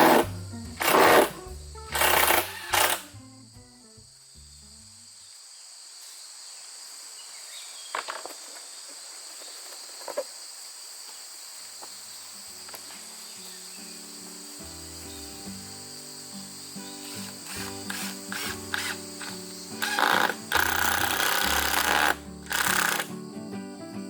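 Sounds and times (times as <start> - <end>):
background music: 0.0 - 5.0, 12.5 - 24.0
insect chirring: 0.0 - 24.0.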